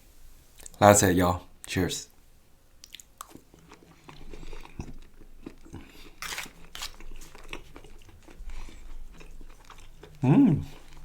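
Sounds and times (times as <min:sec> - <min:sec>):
wet mouth clicks: 0:02.8 - 0:03.4
person chewing food: 0:02.8 - 0:11.0.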